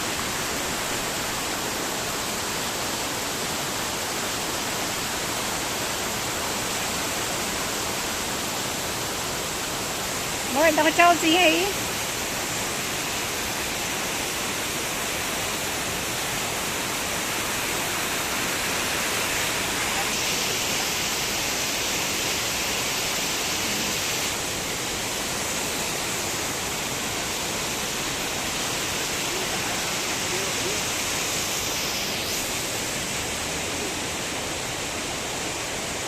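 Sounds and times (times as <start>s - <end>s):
steady rushing noise: 15.8s - 36.0s.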